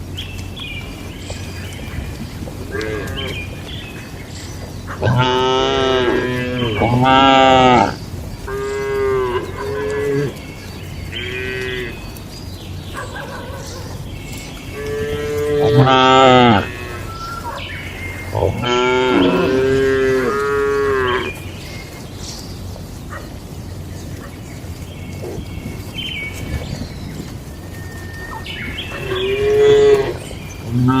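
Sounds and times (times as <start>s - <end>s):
cattle mooing: 2.6s - 3.5s, 5.0s - 10.4s, 11.1s - 12.1s, 14.7s - 17.4s, 18.3s - 21.4s, 29.0s - 31.0s.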